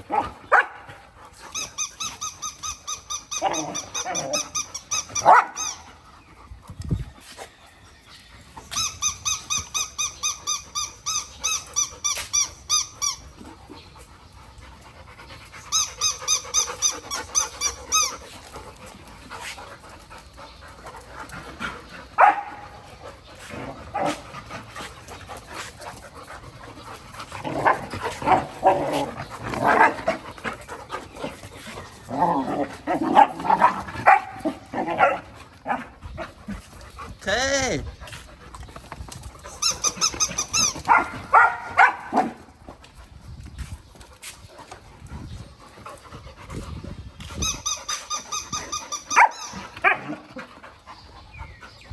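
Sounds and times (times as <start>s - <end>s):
dog barking: 0.1s - 0.9s, 5.2s - 5.6s, 22.2s - 22.5s, 40.9s - 42.4s, 49.2s - 50.0s
dog toy squeaking: 1.5s - 5.8s, 8.7s - 13.2s, 15.7s - 18.2s, 39.5s - 41.0s, 47.4s - 49.6s
dog growling: 27.4s - 30.2s.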